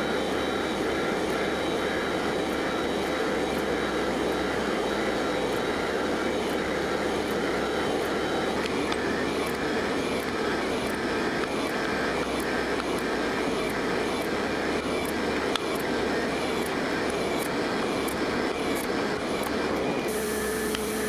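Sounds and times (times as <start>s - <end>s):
workshop equipment roaring: 0.0s - 21.0s.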